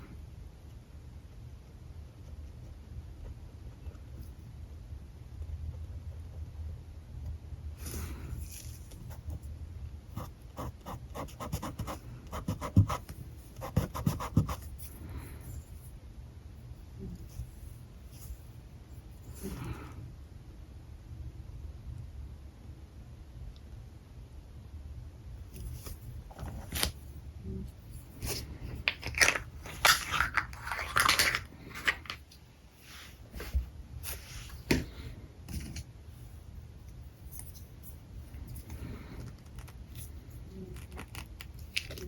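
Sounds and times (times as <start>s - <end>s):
marker scratching on paper: 10.2s - 14.8s.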